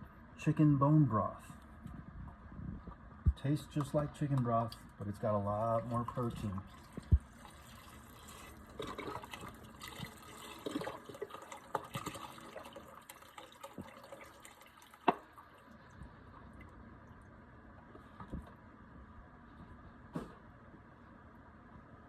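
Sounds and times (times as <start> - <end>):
broth pouring and splashing: 5.6 - 17.4.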